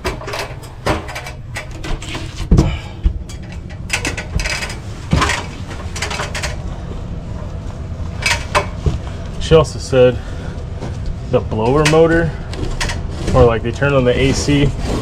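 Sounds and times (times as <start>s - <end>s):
knocks and clicks of handling: 0.0s - 6.6s
steady low rumble: 0.1s - 15.0s.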